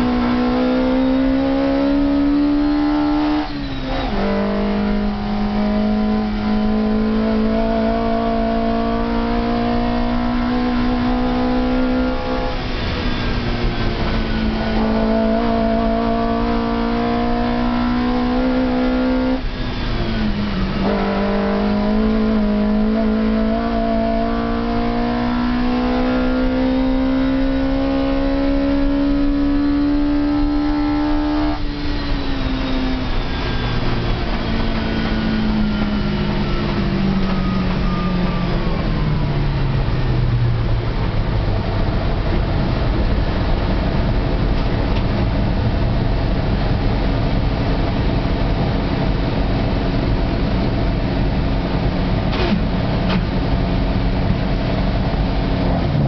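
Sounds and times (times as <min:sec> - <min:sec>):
race car engine revving: 0:00.0 - 0:56.0
falling whine: 0:28.8 - 0:56.0.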